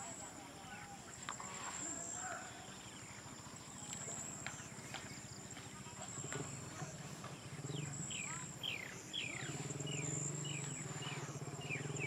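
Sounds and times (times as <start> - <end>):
bird calling with descending whistles: 7.7 - 12.0.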